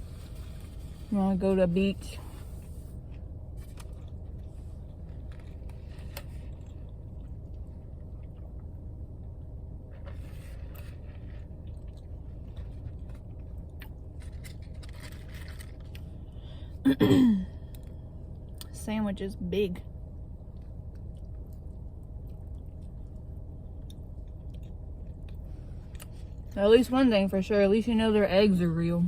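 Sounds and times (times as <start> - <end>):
steady low hum: 0.0 - 29.0
chewing and eating: 2.2 - 16.5, 20.4 - 26.6.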